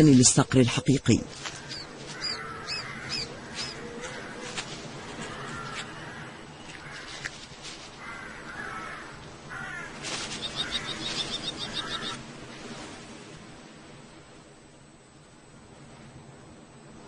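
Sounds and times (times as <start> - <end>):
bird calling: 1.3 - 12.2.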